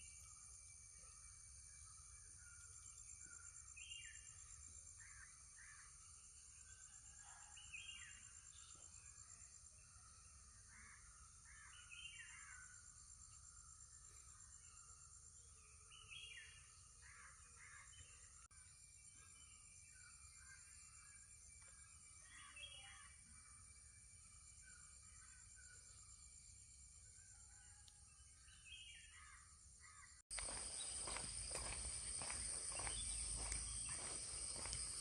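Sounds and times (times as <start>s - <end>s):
high-pitched insect chorus: 28.6s - 35.0s
birds calling: 30.3s - 35.0s.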